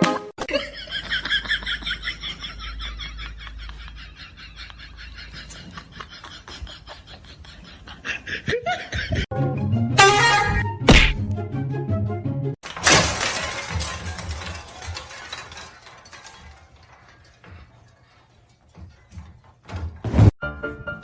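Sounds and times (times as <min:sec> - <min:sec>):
clicks and clatter: 0:12.6 - 0:20.0
loud crash: 0:12.7 - 0:17.7.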